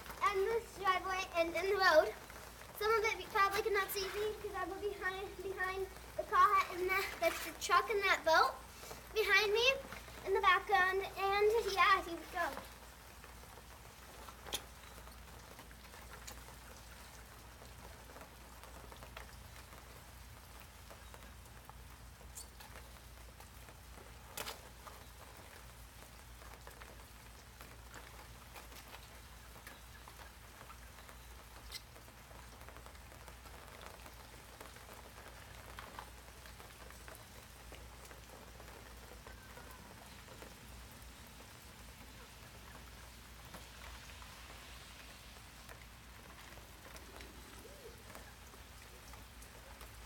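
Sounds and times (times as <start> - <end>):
light rain on pavement: 0.0 - 50.0.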